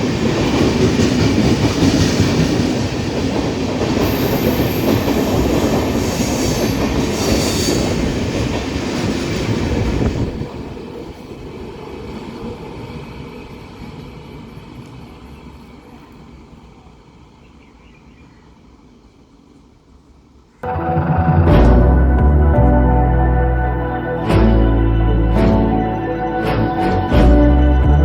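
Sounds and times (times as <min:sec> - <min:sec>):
train rumbling past: 0:00.0 - 0:19.6, 0:20.3 - 0:28.0
high wheel squeal: 0:04.0 - 0:08.2.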